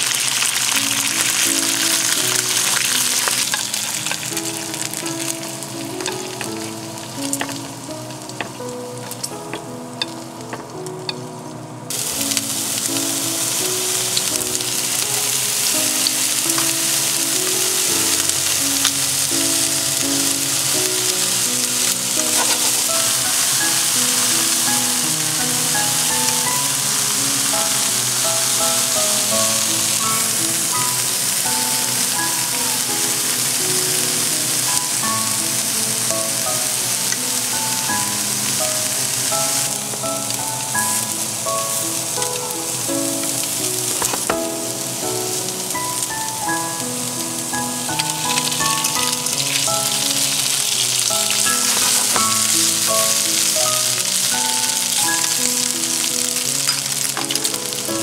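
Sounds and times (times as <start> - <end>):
eggplant sizzling in a pan: 0.0 - 58.0
chopsticks turning food: 0.1 - 11.3, 11.9 - 40.7, 41.5 - 46.4, 47.6 - 58.0.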